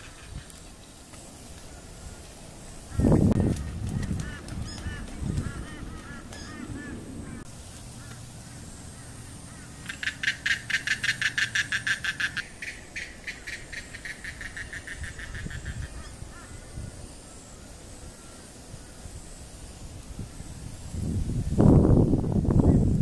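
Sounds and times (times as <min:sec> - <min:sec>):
bird calling in rapid notes: 0:02.9 - 0:16.6.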